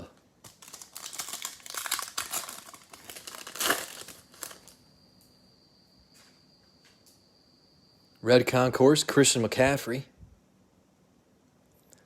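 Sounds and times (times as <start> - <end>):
foil wrappers crinkling: 0.4 - 4.8.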